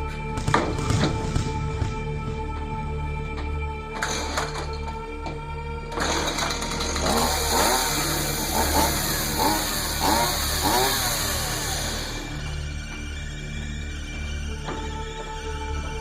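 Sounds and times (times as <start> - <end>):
low music drone: 0.0 - 16.0
chainsaw revving: 5.9 - 12.8.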